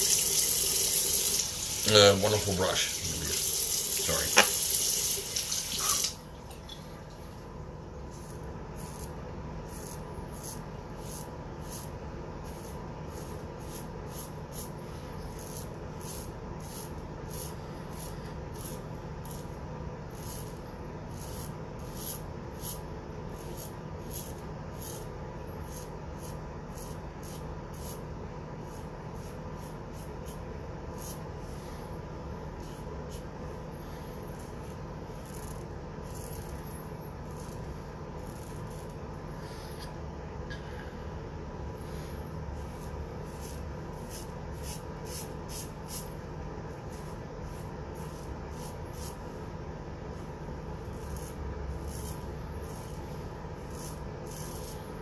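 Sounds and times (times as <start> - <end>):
steady low hum: 0.0 - 55.0
razor scraping stubble: 8.1 - 28.0, 34.2 - 39.0, 41.9 - 49.2, 50.7 - 55.0.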